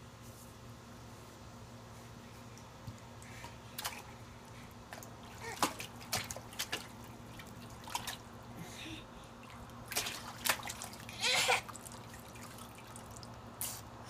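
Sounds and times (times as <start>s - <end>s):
steady low hum: 0.0s - 14.0s
water splashing in a tub: 3.3s - 8.5s, 9.3s - 13.8s.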